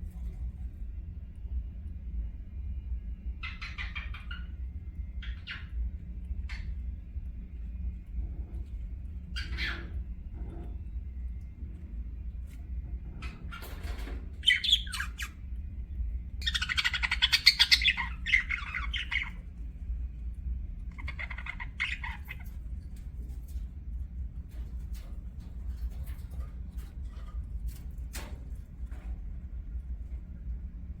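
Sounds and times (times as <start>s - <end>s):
low background rumble: 0.0s - 31.0s
budgerigars chattering and squawking: 3.4s - 4.6s, 5.2s - 5.8s, 9.3s - 10.1s, 13.2s - 15.4s, 16.4s - 19.5s, 20.9s - 22.7s.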